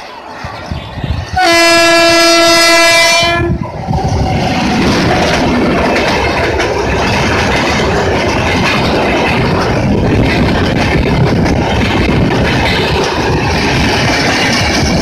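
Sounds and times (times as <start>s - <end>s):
train coaches passing clickety-clack: 0.0s - 15.0s
electric locomotive horn blast: 1.4s - 3.6s.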